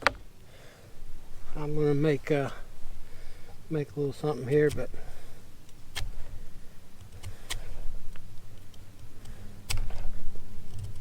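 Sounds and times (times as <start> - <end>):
low rumble of handling: 0.0 - 11.0
sharp clicks: 4.5 - 5.0, 5.6 - 6.2, 7.0 - 10.1.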